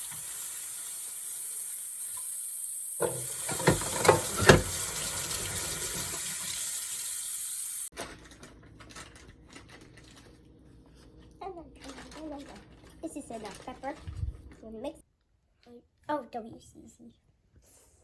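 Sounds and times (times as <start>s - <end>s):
dishes clinking: 3.0s - 4.8s
tap running into sink: 3.0s - 6.6s.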